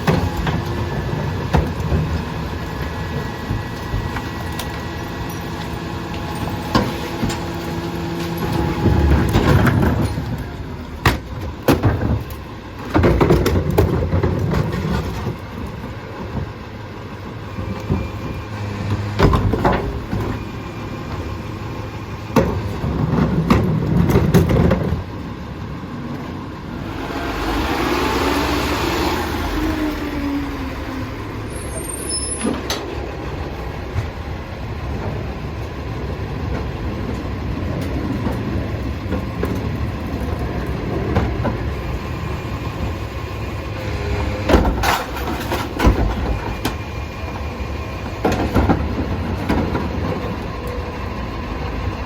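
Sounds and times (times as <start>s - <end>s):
garbage truck engine rumble: 0.0s - 52.0s
clattering and banging: 43.9s - 46.8s.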